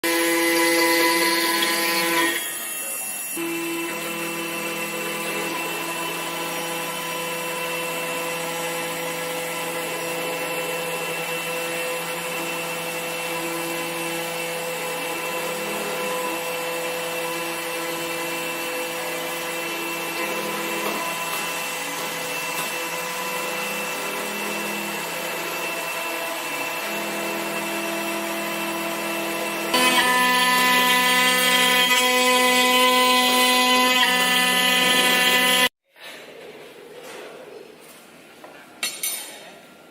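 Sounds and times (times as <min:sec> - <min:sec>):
router spindle whining: 0:00.0 - 0:35.7
router cutting wood: 0:00.0 - 0:35.8.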